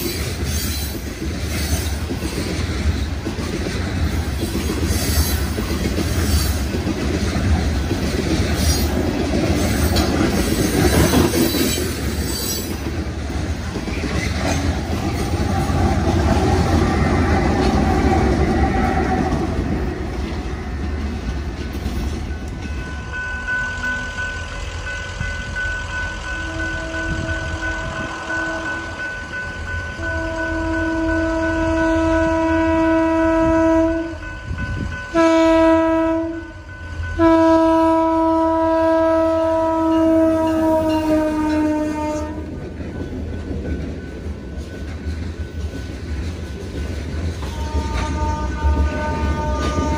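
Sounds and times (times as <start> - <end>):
train rumbling and clattering past: 0.0 - 49.9
locomotive air horn blasts: 26.3 - 29.0, 30.0 - 34.2, 35.1 - 42.5, 47.5 - 49.9.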